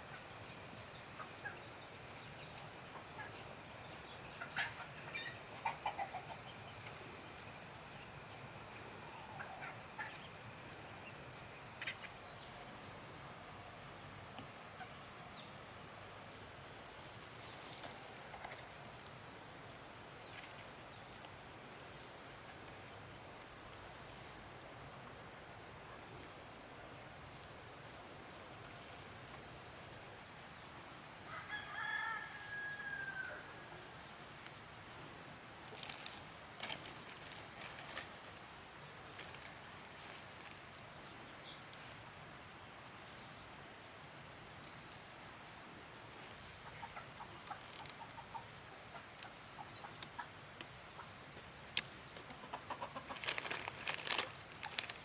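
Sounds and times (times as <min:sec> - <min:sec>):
steady high hiss: 0:00.0 - 0:52.9
rooster crowing: 0:31.3 - 0:33.7.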